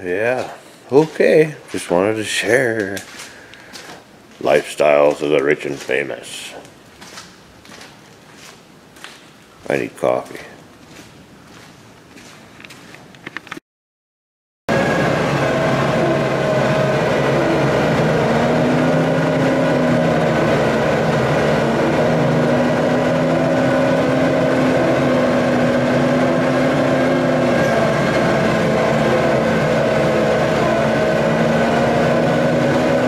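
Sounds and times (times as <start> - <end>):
heavy machine engine running: 14.7 - 33.0.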